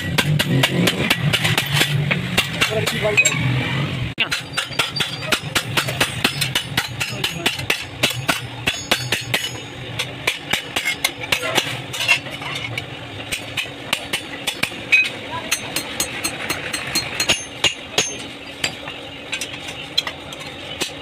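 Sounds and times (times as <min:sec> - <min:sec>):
hammer striking sheet metal: 0:04.2 - 0:11.8.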